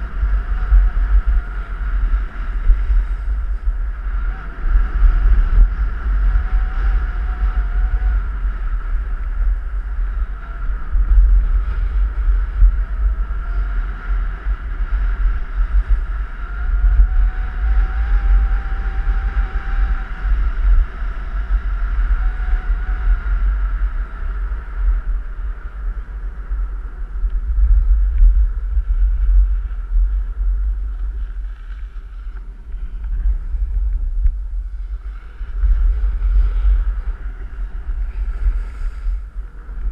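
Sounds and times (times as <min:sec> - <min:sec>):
wind buffeting microphone: 0:00.0 - 0:39.9
snowboard scraping over snow: 0:34.6 - 0:39.8.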